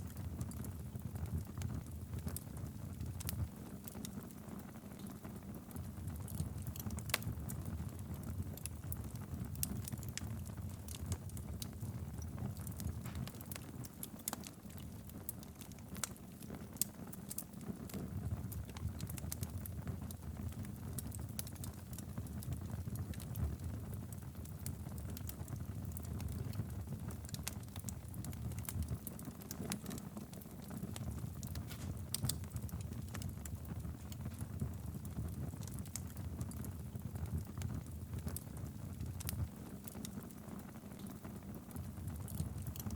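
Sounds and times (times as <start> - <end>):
fire crackling and popping: 0.0 - 42.9
wood fire rumbling: 5.2 - 42.9.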